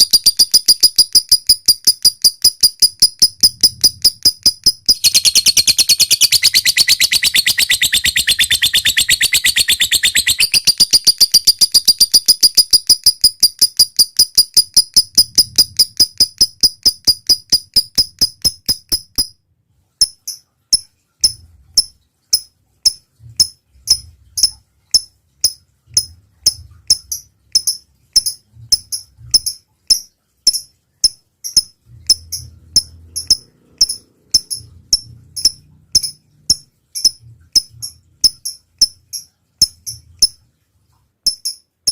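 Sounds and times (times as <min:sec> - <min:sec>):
lovebird high chirps: 0:00.0 - 0:19.3, 0:26.5 - 0:40.4.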